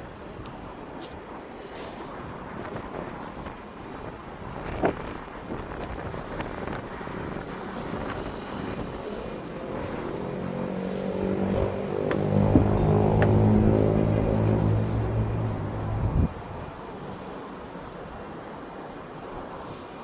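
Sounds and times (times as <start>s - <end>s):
wind on microphone: 0.0s - 20.0s
outdoor rumble: 5.2s - 17.4s
steady pitched drone: 7.5s - 18.0s.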